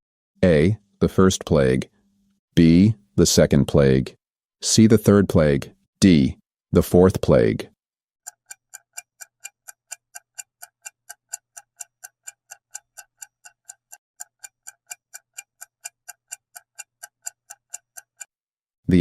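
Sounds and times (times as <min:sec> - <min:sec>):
countdown timer ticking: 0:08.3 - 0:18.3.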